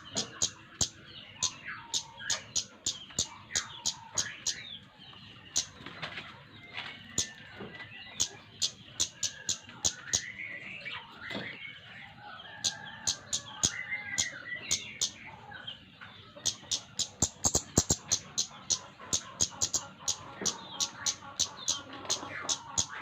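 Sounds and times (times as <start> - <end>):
bird ticking calls: 0.0 - 4.8, 5.5 - 5.8, 8.0 - 10.5, 12.6 - 15.3, 16.3 - 23.0
bird twittering warble: 0.0 - 6.2, 6.9 - 11.6, 12.5 - 15.5, 16.2 - 23.0.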